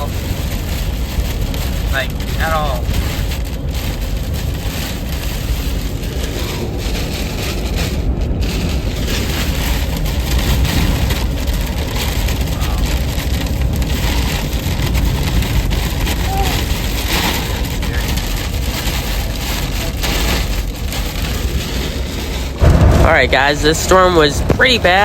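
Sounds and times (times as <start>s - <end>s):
wind buffeting: 0.0s - 17.8s, 20.6s - 25.0s
heavy rain pounding on a car: 0.0s - 25.0s
deep thunder rumble: 20.2s - 25.0s.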